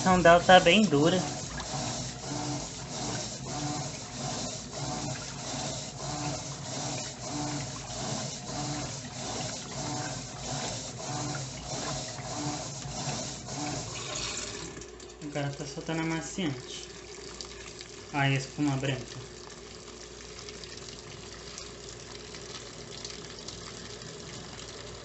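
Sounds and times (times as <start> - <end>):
water and clothes sloshing: 0.0 - 15.7
washing machine motor humming: 0.0 - 25.0.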